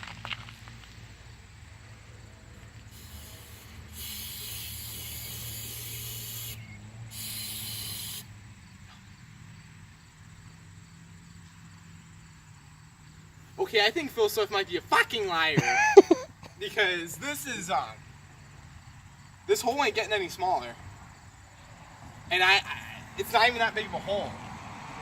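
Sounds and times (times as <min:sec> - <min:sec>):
aerosol can spraying hiss: 0:02.8 - 0:08.3.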